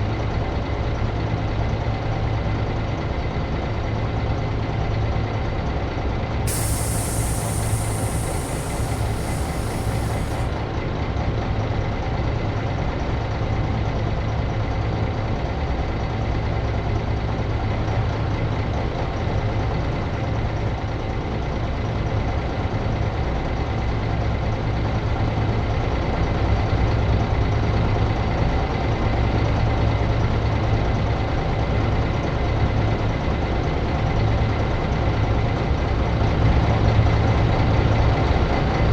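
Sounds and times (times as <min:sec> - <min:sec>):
bus diesel engine idling: 0:06.5 - 0:10.6
high hiss: 0:06.5 - 0:10.6.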